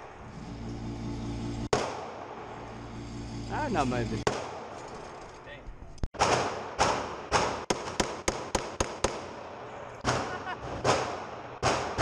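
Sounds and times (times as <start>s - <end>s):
handgun shots: 6.2s - 9.3s.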